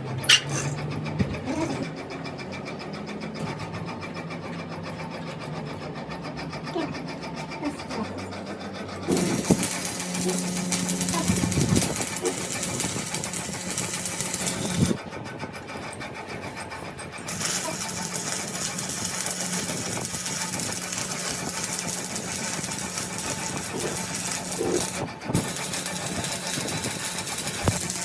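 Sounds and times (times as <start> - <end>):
engine running steadily: 6.0 - 15.3.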